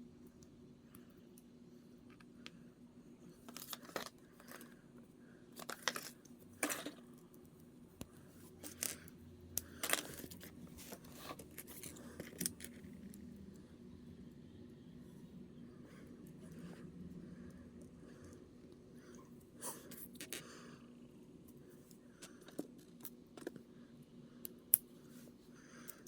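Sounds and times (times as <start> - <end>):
steady low hum: 0.0 - 26.0
plastic parts clicking and rattling: 3.5 - 4.7, 5.6 - 7.2, 9.6 - 12.9.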